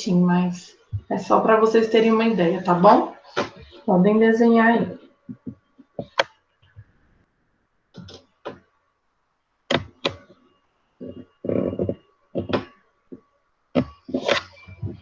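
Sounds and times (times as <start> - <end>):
knocks and thuds of objects: 5.3 - 6.3.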